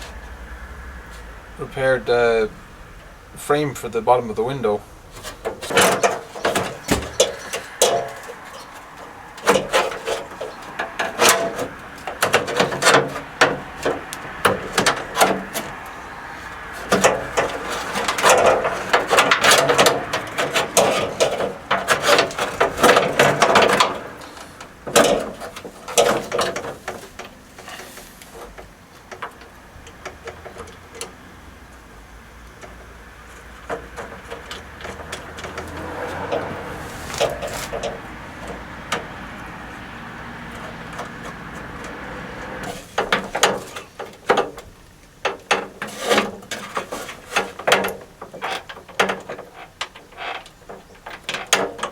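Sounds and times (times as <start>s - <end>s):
metal parts knocking and scraping: 5.0s - 31.2s, 32.5s - 39.5s, 40.5s - 51.9s.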